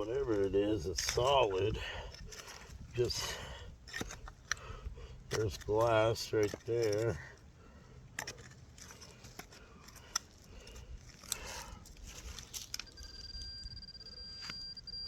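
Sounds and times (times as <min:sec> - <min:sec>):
digging in stony soil: 0:00.0 - 0:13.4
metal detector high tone: 0:12.7 - 0:15.0.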